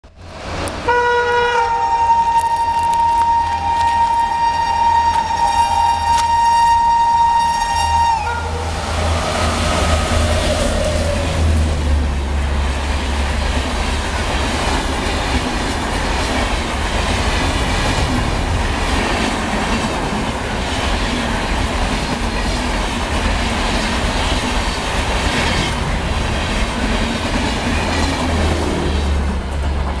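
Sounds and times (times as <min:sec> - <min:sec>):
train passing with rumble: 0:00.1 - 0:30.0
train horn: 0:00.8 - 0:11.7
clickety-clack of train wheels: 0:02.2 - 0:08.3, 0:12.6 - 0:30.0.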